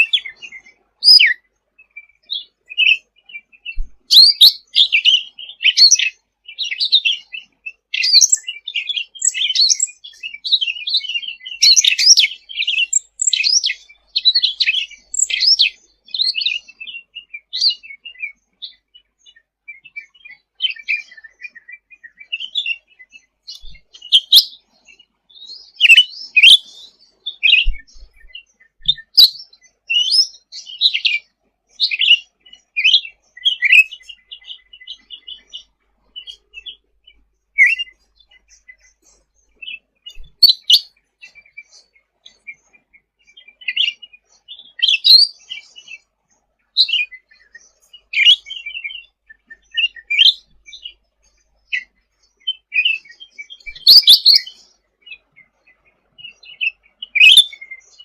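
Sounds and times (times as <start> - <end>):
songbird chirping and trilling: 0.0 - 58.0.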